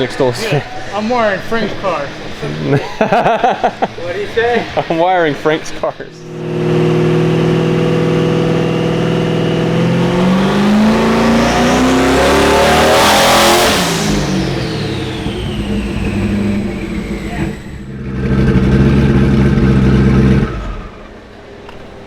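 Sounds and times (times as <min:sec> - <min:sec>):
high turbo whine: 0:03.4 - 0:21.8
car engine revving: 0:06.2 - 0:21.3.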